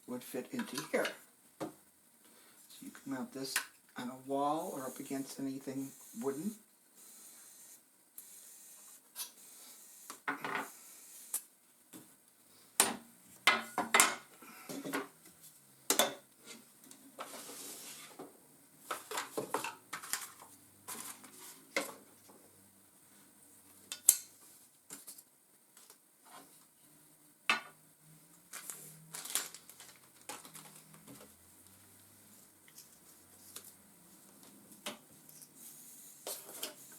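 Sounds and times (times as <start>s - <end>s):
packaging rustle: 28.5s - 31.3s
plastic pieces clacking and rattling: 28.5s - 31.3s.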